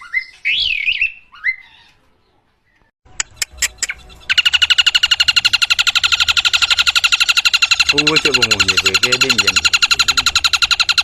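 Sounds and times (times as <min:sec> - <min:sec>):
bird singing whistled notes: 0:00.0 - 0:01.9
sharp bird clicks: 0:02.8 - 0:11.0
rapid pulsing steady tones: 0:04.2 - 0:11.0.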